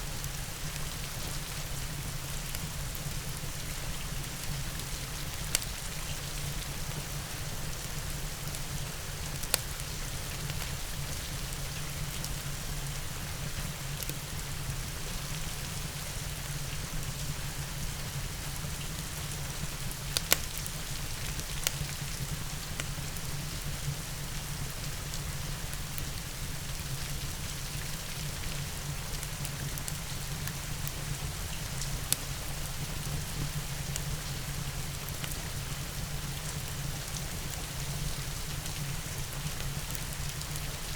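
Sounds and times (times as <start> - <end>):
steady rain: 0.0 - 40.9
wood fire crackling pops: 8.4 - 10.6, 18.9 - 23.0.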